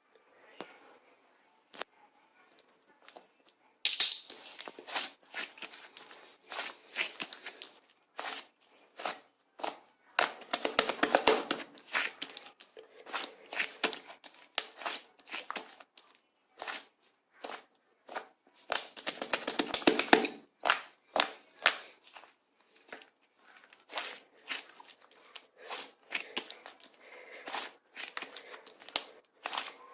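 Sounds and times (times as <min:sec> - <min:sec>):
clay slime squished and pulled: 0:03.9 - 0:29.9
crackling and popping: 0:09.6 - 0:12.7, 0:18.6 - 0:22.0, 0:26.2 - 0:29.8.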